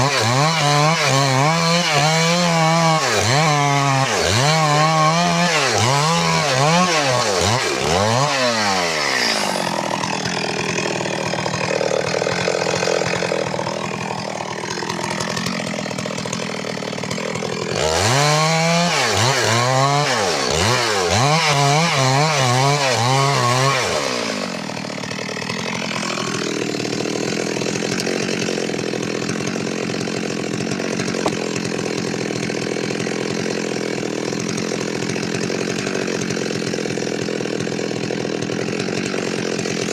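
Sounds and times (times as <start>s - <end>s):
chainsaw cutting wood: 0.0s - 39.9s
chainsaw revving: 0.0s - 39.9s.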